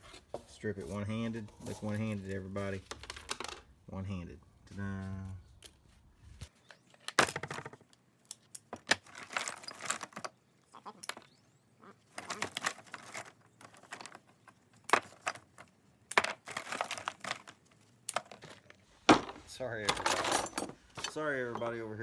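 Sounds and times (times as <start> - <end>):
metal pieces clinking: 19.9 - 21.8.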